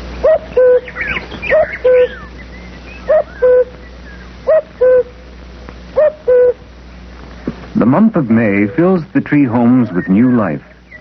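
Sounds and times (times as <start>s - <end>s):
small birds chirping: 0.0s - 11.0s
bird cooing call: 0.1s - 5.3s, 6.0s - 6.7s, 9.7s - 11.0s.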